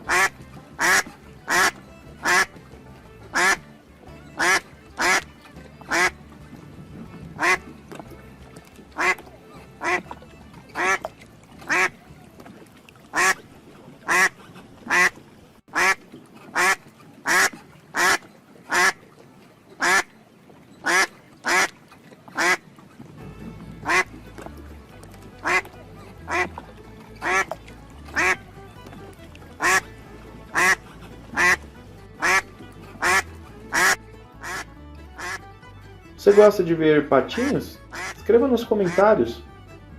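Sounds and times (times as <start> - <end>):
duck quacking: 0.0 - 2.6, 3.3 - 3.6, 4.3 - 5.3, 5.9 - 6.2, 7.4 - 7.6, 9.0 - 12.0, 13.1 - 13.4, 14.0 - 19.0, 19.8 - 20.1, 20.8 - 21.7, 22.4 - 22.6, 23.8 - 24.2, 25.4 - 26.6, 27.2 - 28.5, 29.5 - 35.4, 37.3 - 39.2
quiet background music: 0.0 - 15.2, 15.8 - 39.9.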